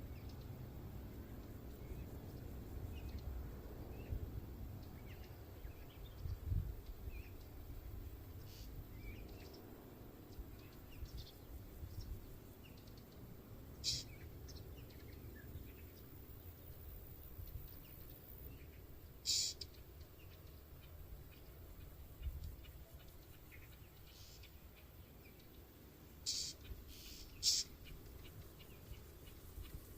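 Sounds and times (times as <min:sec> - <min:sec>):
wind rumble on microphone: 0:00.0 - 0:18.9, 0:20.6 - 0:23.2
songbirds chirping: 0:00.0 - 0:29.9
loud noisy bird calls: 0:13.7 - 0:15.7, 0:18.6 - 0:20.9, 0:26.2 - 0:28.0.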